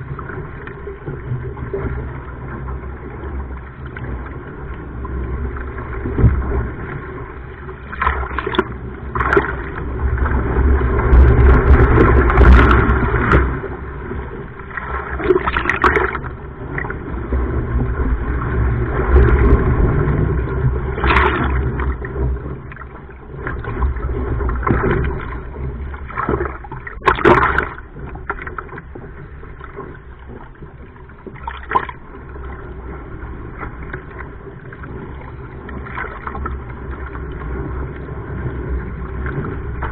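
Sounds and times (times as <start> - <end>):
steady low rumble: 0.0 - 39.9
water sloshing against boat: 0.0 - 39.9
sharp splashes: 21.0 - 22.0, 26.1 - 27.8.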